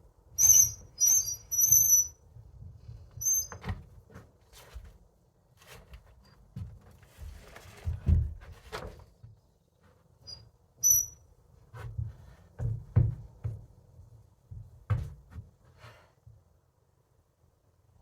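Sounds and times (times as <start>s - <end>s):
brief high squeak: 0.4s - 2.2s, 3.2s - 3.7s, 10.3s - 11.2s
knocks and thumps on wood: 11.8s - 13.7s, 14.5s - 15.5s.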